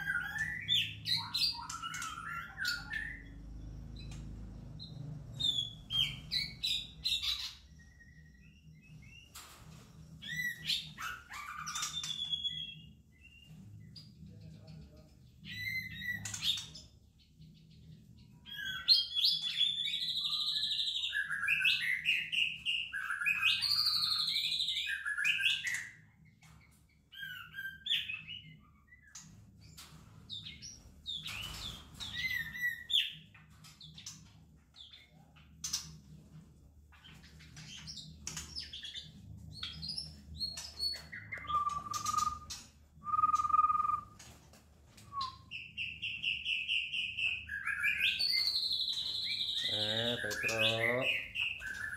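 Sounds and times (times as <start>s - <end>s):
bird calls and clicks: 0.0s - 5.0s, 9.0s - 17.8s, 22.4s - 51.9s
bird singing whistled phrases: 40.5s - 44.2s, 45.0s - 51.9s.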